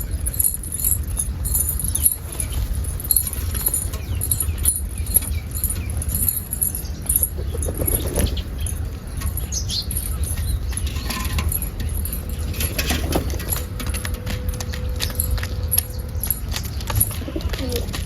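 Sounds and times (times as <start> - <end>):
clicks and rattles: 0.0 - 18.0
steady low rumble: 0.0 - 18.0
pigeon wings flapping: 7.1 - 8.6, 12.6 - 18.0.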